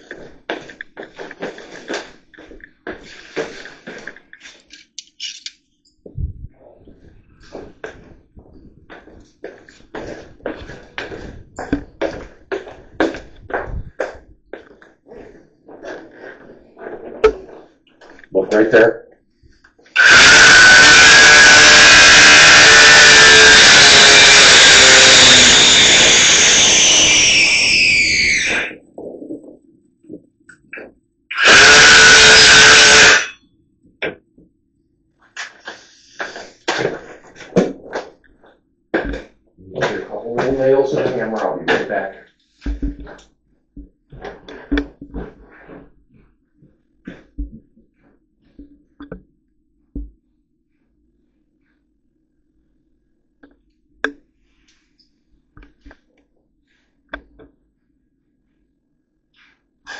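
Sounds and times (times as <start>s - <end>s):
knocks and bumps: 6.0s - 14.8s, 42.6s - 43.2s
motor winding down: 20.0s - 28.8s, 31.3s - 33.4s
power tool motor whining: 20.0s - 28.8s, 31.3s - 33.4s.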